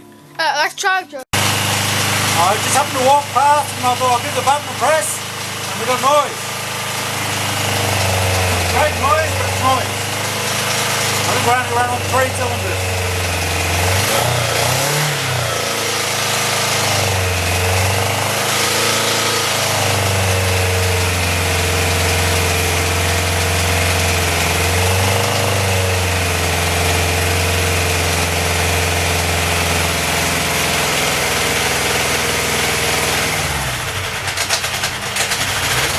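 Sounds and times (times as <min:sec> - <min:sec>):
rough motorcycle engine revving: 0:01.3 - 0:35.9.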